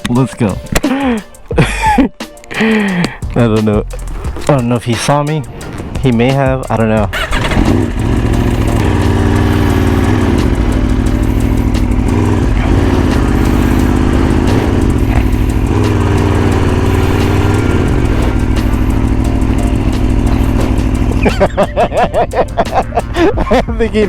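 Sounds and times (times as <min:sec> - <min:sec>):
motorcycle engine idling: 0:06.1 - 0:24.0.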